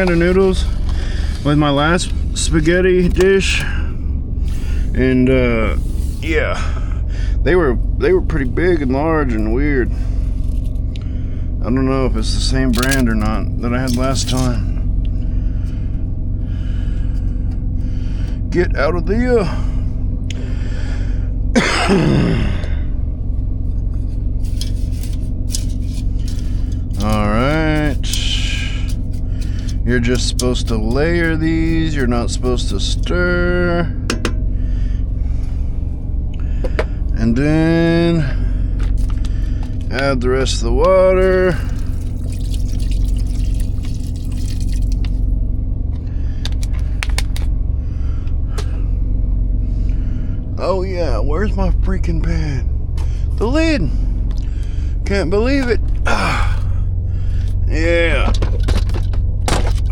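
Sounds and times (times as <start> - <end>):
engine unit humming: 0.0 - 59.9
handling clicks and rustles: 12.4 - 15.1, 23.8 - 33.0, 57.4 - 59.9
man coughing: 21.5 - 22.8
sharp clicks and knocks: 34.1 - 34.4
water pouring into pot: 41.2 - 45.2.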